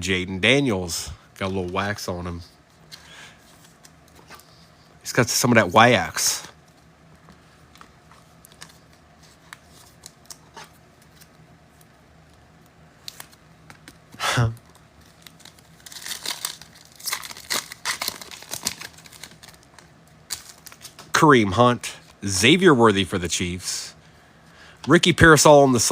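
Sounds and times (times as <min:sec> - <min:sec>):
foil wrappers tearing and crinkling: 0:14.7 - 0:21.1.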